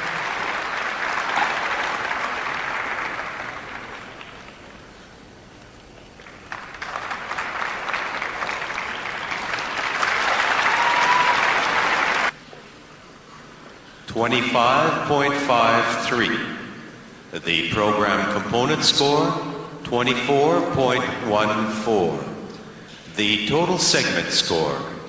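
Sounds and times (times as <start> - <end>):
audience applauding: 0.0 - 4.8, 6.2 - 12.4.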